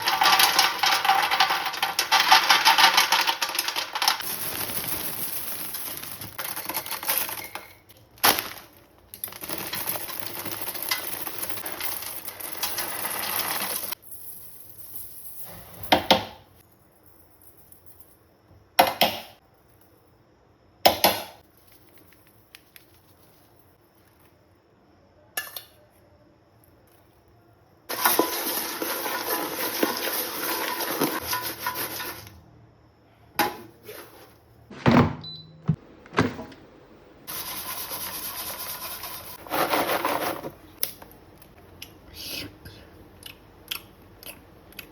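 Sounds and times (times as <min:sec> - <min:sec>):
bowls and utensils clinking: 0:00.0 - 0:06.3.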